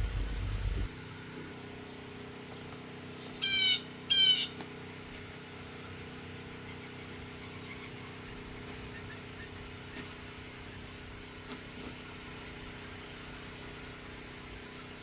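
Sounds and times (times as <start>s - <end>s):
mechanical hum: 0.0s - 15.0s
blue jay harsh jeer calls: 3.3s - 4.6s.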